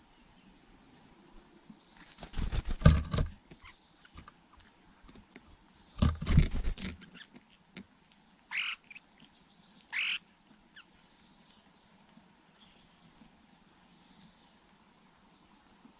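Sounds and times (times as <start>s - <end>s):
rustling and thumping: 2.3s - 3.5s, 6.0s - 7.1s
bird croaky calls: 8.5s - 9.3s, 9.9s - 10.9s.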